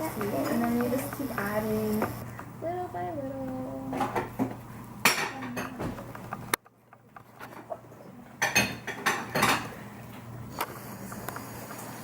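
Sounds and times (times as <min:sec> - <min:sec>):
dishes and utensils clinking: 0:08.4 - 0:09.8.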